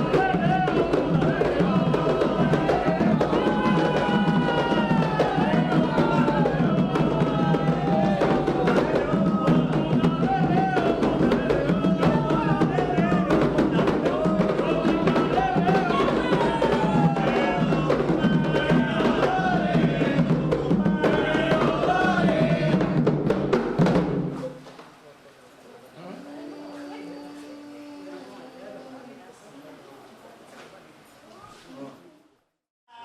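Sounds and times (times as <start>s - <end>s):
sung chant: 0.0s - 23.5s, 26.0s - 29.6s
hand drums: 0.0s - 24.6s.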